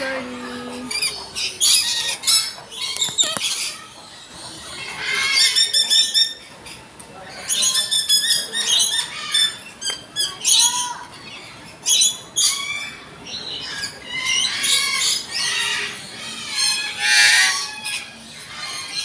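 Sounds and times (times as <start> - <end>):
parrots squawking: 13.6 - 19.0.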